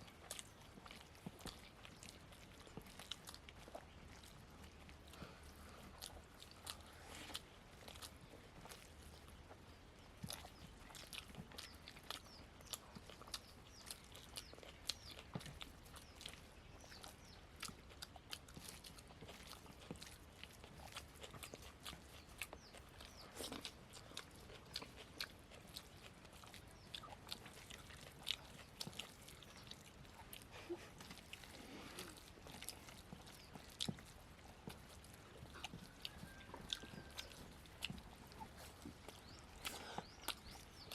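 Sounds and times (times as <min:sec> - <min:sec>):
people chewing: 0:00.0 - 0:40.9.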